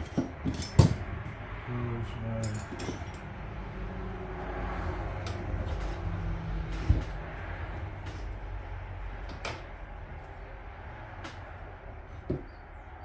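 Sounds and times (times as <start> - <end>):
tools and metal parts clicking: 0.0 - 1.3, 2.4 - 3.3.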